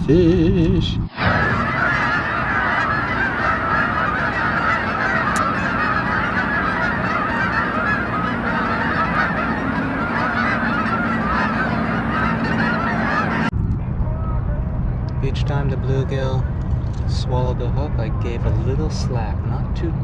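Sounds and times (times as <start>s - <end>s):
geese honking: 1.2s - 13.5s.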